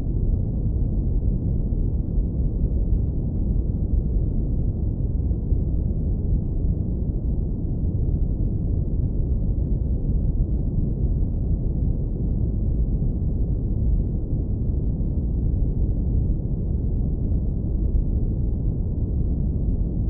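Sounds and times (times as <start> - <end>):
deep rumbling brown noise: 0.0 - 20.0.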